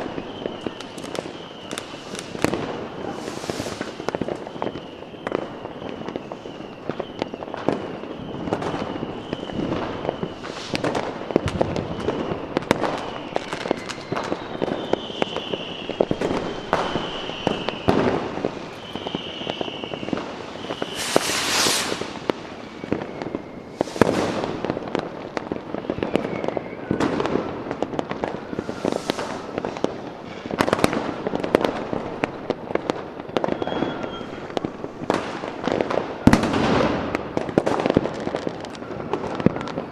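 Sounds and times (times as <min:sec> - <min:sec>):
fireworks bangs and crackles: 0:00.0 - 0:39.9
high wavering whistle: 0:00.2 - 0:24.5, 0:28.4 - 0:29.9, 0:33.5 - 0:34.5
loud hissing burst: 0:03.0 - 0:04.1, 0:10.3 - 0:11.1, 0:20.6 - 0:22.8, 0:23.6 - 0:24.6, 0:28.4 - 0:29.8.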